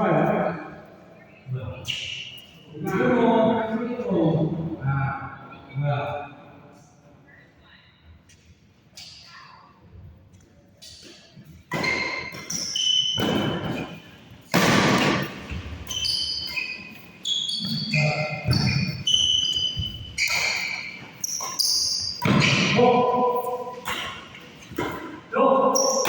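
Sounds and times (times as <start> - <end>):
shoes squeaking on court floor: 10.8 - 26.0.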